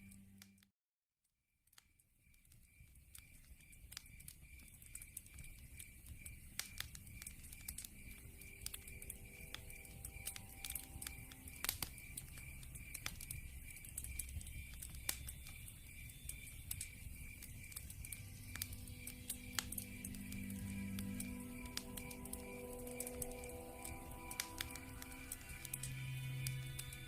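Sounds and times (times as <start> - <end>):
log fire crackling: 2.3 - 27.0
pulsing high insect chirp: 2.7 - 27.0.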